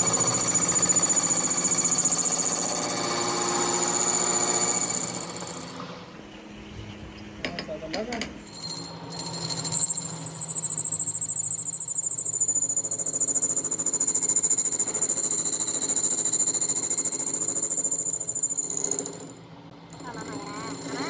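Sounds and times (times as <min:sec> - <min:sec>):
high-pitched machine squeal on metal: 0:08.5 - 0:15.0.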